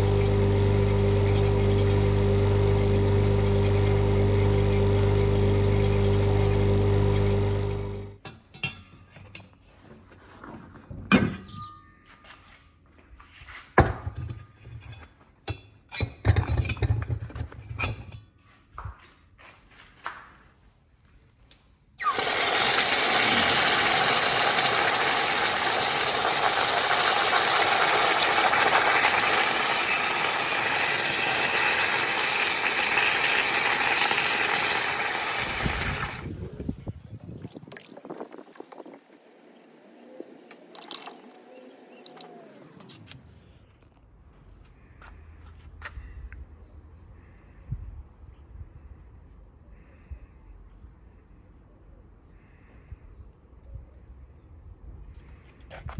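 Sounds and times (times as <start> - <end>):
running water: 22.0 - 39.8, 40.6 - 42.6.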